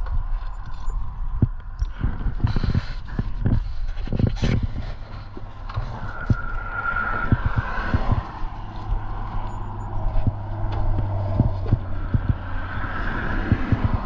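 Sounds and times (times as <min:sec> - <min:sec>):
road traffic passing: 0:04.9 - 0:14.0.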